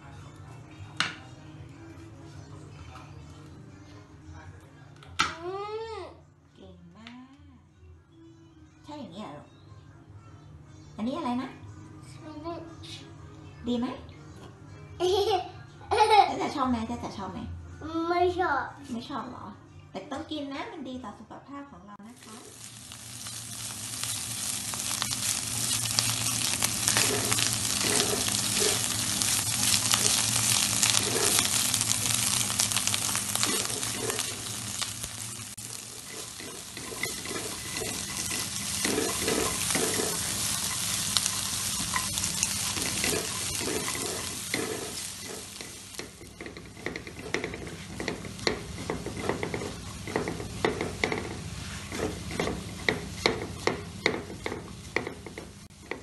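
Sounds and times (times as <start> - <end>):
food sizzling in a frying pan: 22.1 - 56.0
spatula scraping a pan: 22.2 - 56.0.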